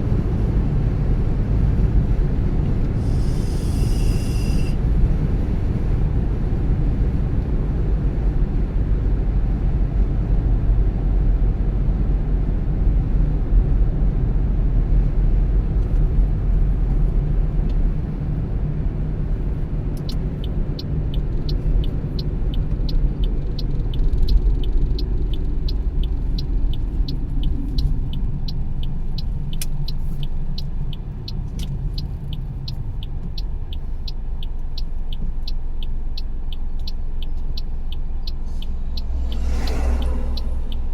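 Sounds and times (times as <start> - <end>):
car road and engine rumble: 0.0 - 40.9
light ticking: 20.0 - 40.9.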